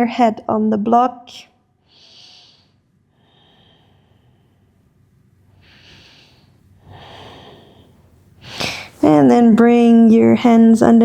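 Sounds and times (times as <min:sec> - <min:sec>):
woman breathing through nose: 0:01.8 - 0:04.8, 0:05.5 - 0:09.0.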